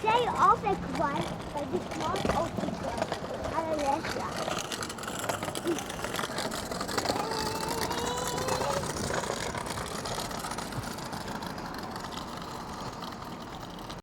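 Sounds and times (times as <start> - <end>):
electric train rumble: 0.0 - 14.0.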